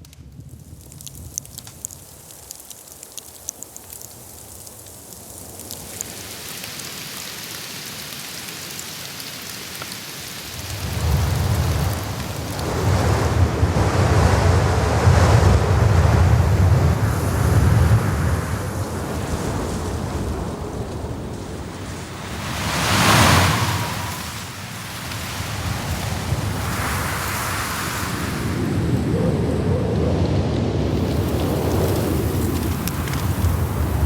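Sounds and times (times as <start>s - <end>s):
light scattered ticks: 0.0s - 13.6s, 30.9s - 34.0s
wind gusts buffeting microphone: 10.5s - 34.0s.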